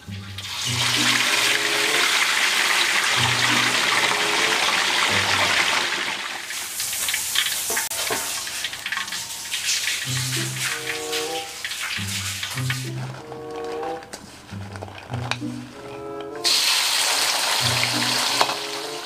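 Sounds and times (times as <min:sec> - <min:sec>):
light background music: 0:00.0 - 0:05.6, 0:10.0 - 0:19.0
oil sizzling and popping: 0:00.0 - 0:19.0.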